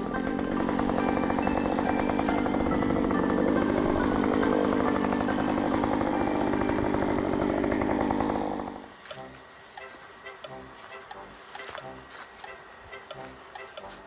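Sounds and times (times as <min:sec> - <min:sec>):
chainsaw engine running: 0:00.0 - 0:10.0.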